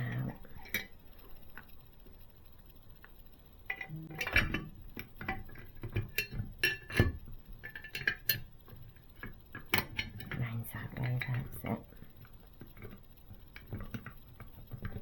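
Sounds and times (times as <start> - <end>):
small parts clicking and clinking: 0.0 - 15.0.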